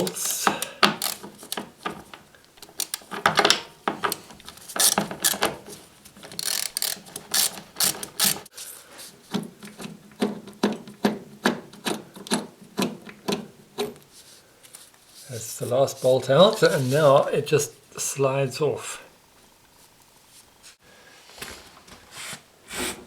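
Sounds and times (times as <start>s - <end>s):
hand tool clicking and scraping: 0.0s - 8.5s.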